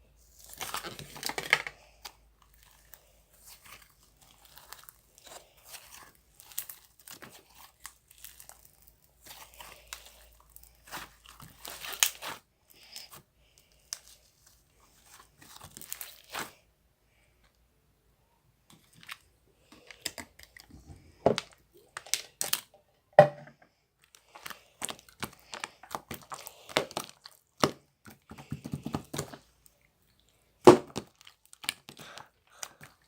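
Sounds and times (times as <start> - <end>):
slime crackling and popping: 0.3 - 13.2, 13.8 - 16.6, 24.2 - 28.2, 30.6 - 33.0.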